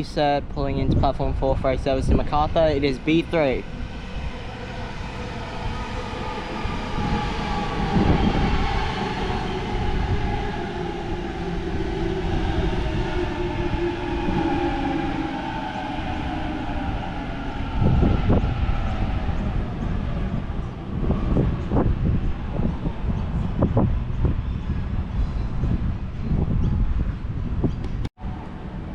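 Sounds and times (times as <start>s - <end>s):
low bursts: 0.0s - 28.9s
wheels rumbling on rails: 0.0s - 28.9s
electric train motors whining: 2.0s - 24.2s.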